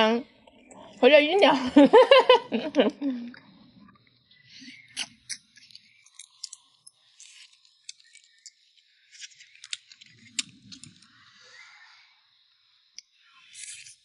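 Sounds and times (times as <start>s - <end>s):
person chewing crisp food: 4.6s - 11.2s.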